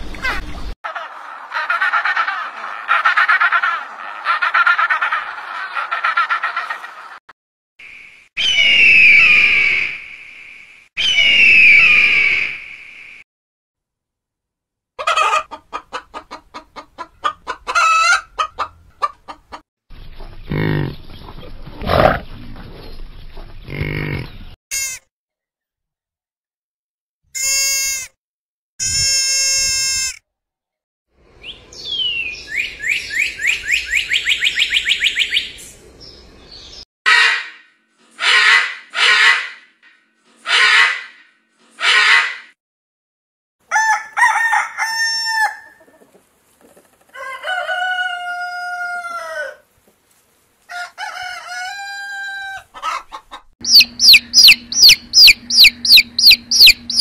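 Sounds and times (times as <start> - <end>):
repeated animal calls: 0.3 - 7.2, 20.5 - 21.1, 21.7 - 22.4, 23.6 - 25.1, 52.6 - 57.0
harsh macaw squawks: 0.9 - 7.0, 37.1 - 39.7, 40.4 - 42.6, 53.6 - 57.0
fast rising animal calls: 0.9 - 7.2, 53.6 - 57.0.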